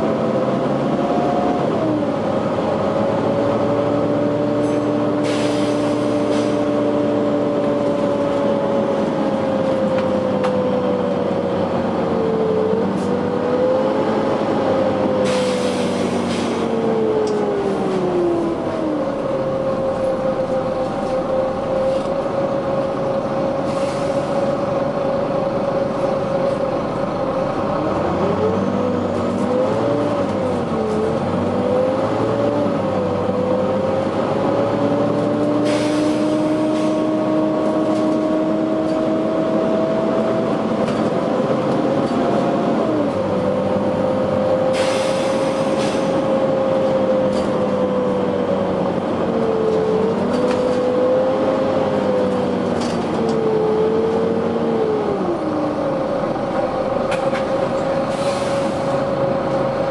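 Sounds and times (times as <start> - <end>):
bus engine whine: 0.0 - 59.9
air hissing: 44.7 - 46.1.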